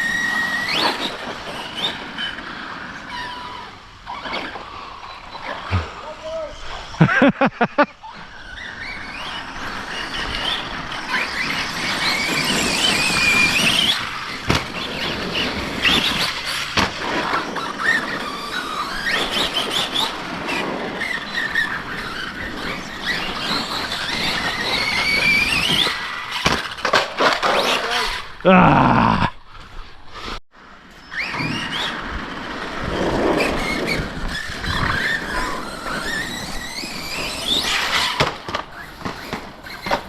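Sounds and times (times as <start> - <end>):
tyres rushing on dirt: 0.0 - 28.6.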